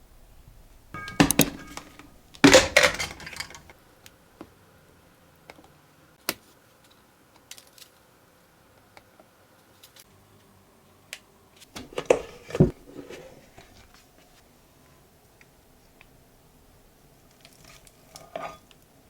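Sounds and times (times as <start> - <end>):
small objects clattering: 1.0 - 3.8.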